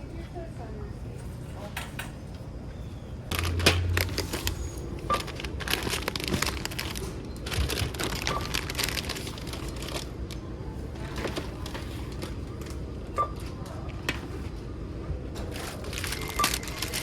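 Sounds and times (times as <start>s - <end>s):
plastic packaging crinkling: 3.3s - 12.7s, 15.5s - 17.0s.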